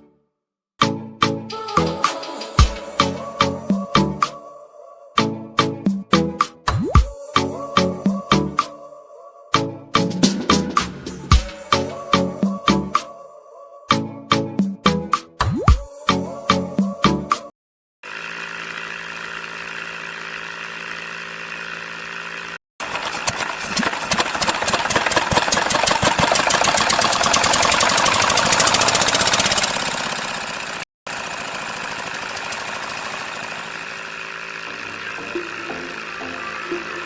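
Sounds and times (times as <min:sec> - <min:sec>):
small motor humming: 0:18.0 - 0:37.0
fast rattling clatter: 0:22.8 - 0:33.8.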